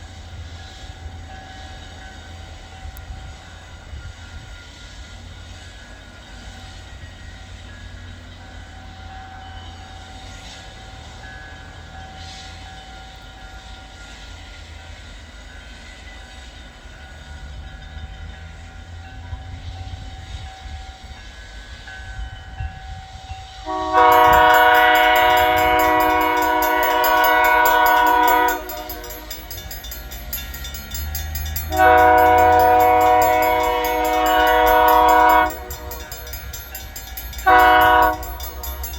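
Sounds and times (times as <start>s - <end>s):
locomotive horn blast: 23.6s - 29.9s, 31.5s - 36.6s, 37.4s - 38.9s
diesel locomotive rumble: 23.6s - 38.9s.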